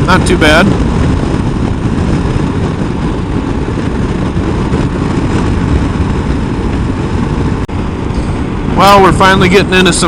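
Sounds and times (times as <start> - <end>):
motorcycle engine running: 0.0 - 10.0
wind and road noise: 0.0 - 10.0.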